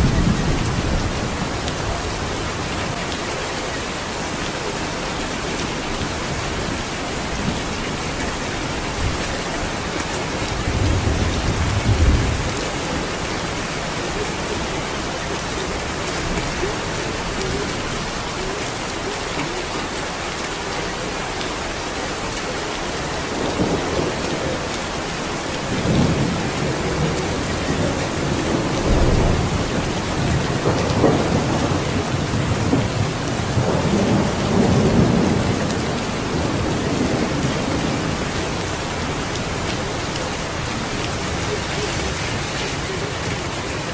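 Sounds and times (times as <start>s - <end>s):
steady rain: 0.0s - 43.9s
thunder rumbling: 6.6s - 15.4s, 25.7s - 43.3s.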